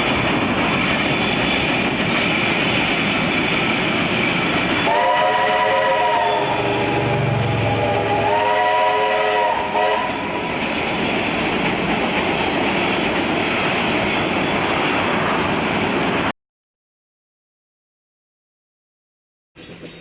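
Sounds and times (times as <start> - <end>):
train rumbling past: 0.0 - 16.3, 19.6 - 20.0
train whistle chord: 4.8 - 10.2.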